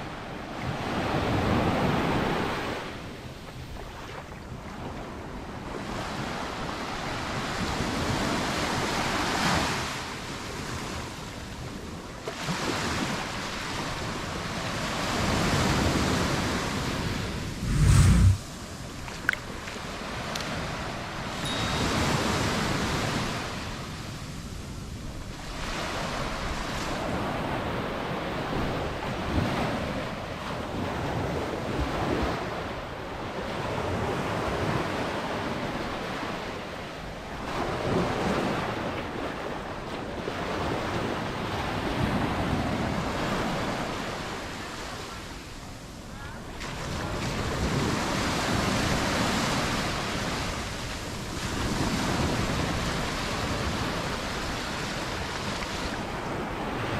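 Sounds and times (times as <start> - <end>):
surf breaking on a sandy beach: 12.3 - 24.2, 46.4 - 56.9
wind on microphone: 15.2 - 19.5.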